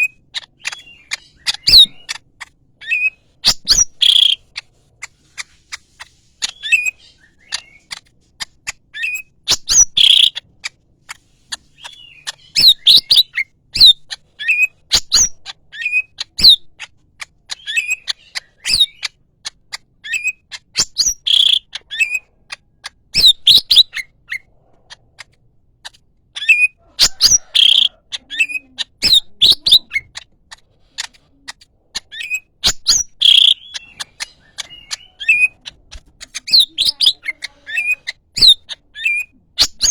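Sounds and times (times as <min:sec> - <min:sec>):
bird chirping and whistling: 0:00.0 - 0:02.2, 0:02.8 - 0:04.6, 0:06.4 - 0:08.1, 0:09.0 - 0:10.4, 0:11.8 - 0:16.7, 0:17.5 - 0:19.2, 0:20.0 - 0:22.2, 0:23.2 - 0:24.1, 0:26.4 - 0:30.2, 0:32.0 - 0:39.9.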